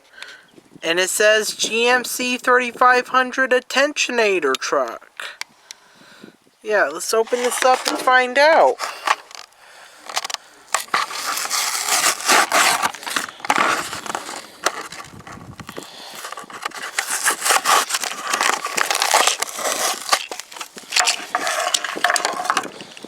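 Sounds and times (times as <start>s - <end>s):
packaging being torn open: 8.8s - 23.0s.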